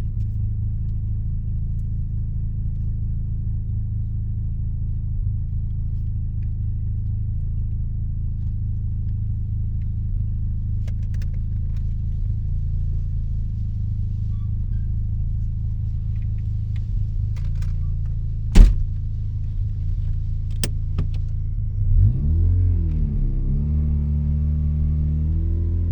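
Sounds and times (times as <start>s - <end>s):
sharp knock: 18.6s - 18.9s.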